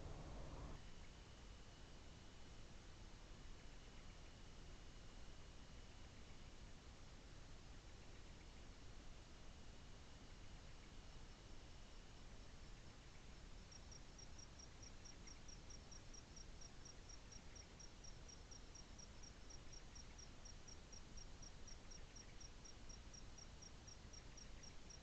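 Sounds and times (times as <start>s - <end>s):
low background hiss: 0.0s - 25.0s
cricket chirping: 13.0s - 25.0s.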